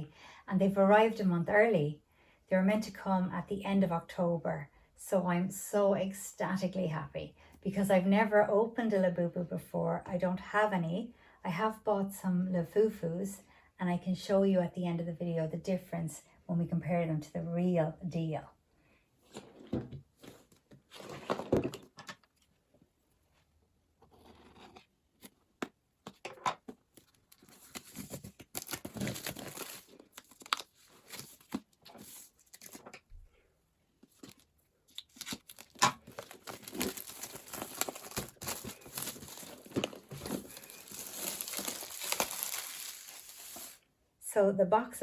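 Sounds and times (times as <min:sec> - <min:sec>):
packaging torn and crinkled: 0:27.0 - 0:33.0, 0:34.2 - 0:43.8.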